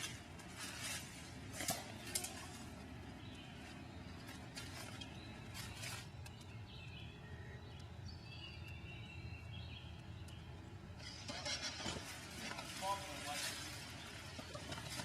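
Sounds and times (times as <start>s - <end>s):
footsteps crunching through undergrowth: 0.0s - 6.6s, 11.7s - 15.0s.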